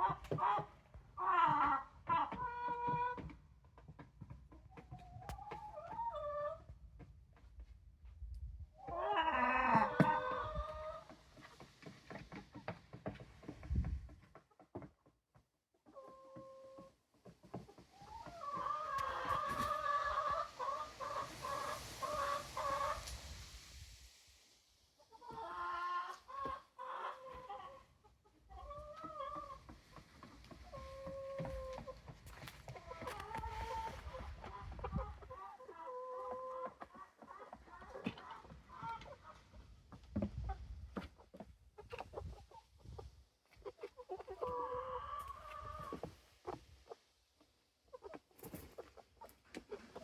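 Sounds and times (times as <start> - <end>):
drawn-out hen call: 0.0 - 3.2, 8.8 - 11.2, 17.8 - 23.5
chickens clucking: 0.0 - 6.7, 8.8 - 23.9, 25.0 - 50.0.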